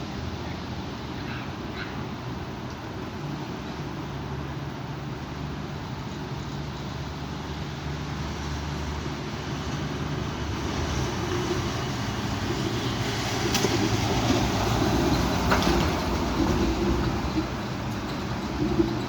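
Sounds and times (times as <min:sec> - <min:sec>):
strong wind gusting: 0:09.5 - 0:19.0.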